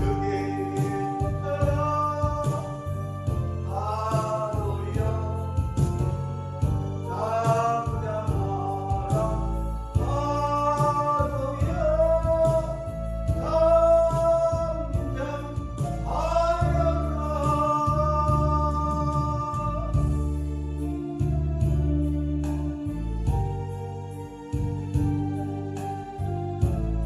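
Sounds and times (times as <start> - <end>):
person singing praise song: 0.0 - 20.2
instrumental accompaniment: 0.0 - 27.0.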